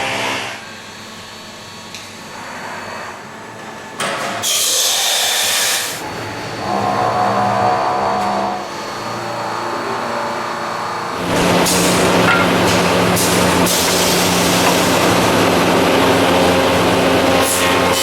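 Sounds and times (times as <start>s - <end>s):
lathe motor hum and whine: 5.0s - 18.0s
hissing lathe cut: 8.6s - 18.0s.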